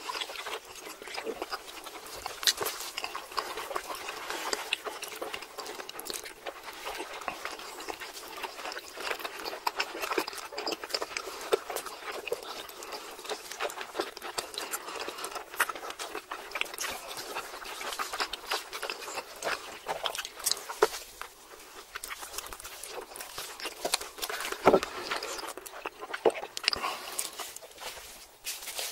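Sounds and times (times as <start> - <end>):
people chewing with wet smacks: 0.0 - 28.9.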